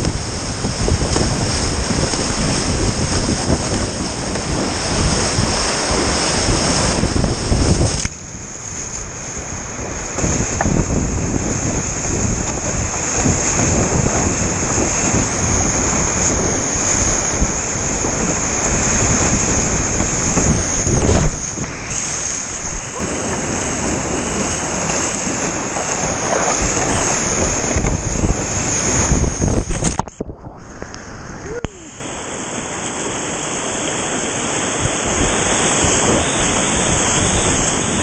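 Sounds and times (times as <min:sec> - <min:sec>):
wind buffeting microphone: 0:00.0 - 0:38.0
river water rushing: 0:18.6 - 0:38.0.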